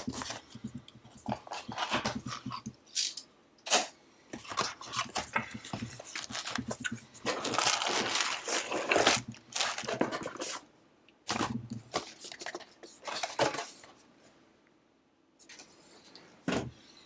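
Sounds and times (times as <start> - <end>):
cardboard and plastic bags handled: 4.4 - 10.6
crinkling rustle: 4.5 - 10.6.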